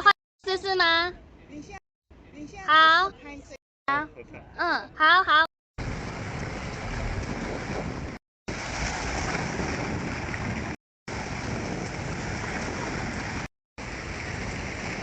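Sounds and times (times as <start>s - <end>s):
ocean surf rushing: 5.8s - 15.0s.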